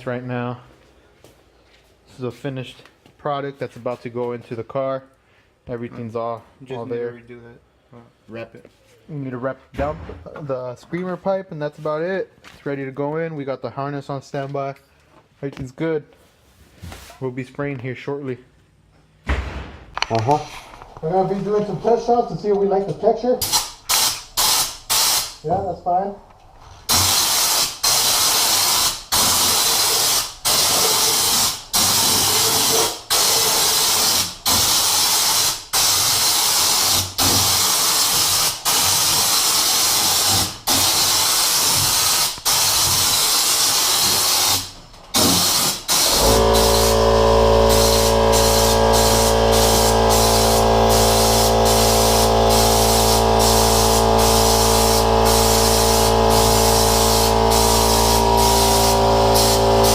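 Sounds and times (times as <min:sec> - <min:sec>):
spray gun hissing: 0:23.5 - 0:25.4, 0:26.9 - 0:59.9.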